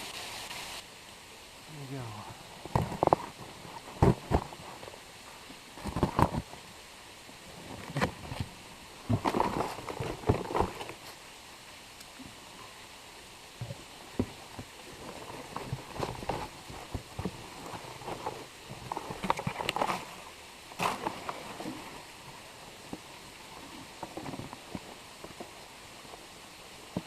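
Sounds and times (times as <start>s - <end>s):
waterfall rushing: 0.0s - 5.8s
cardboard package rustling and tearing: 9.1s - 11.0s.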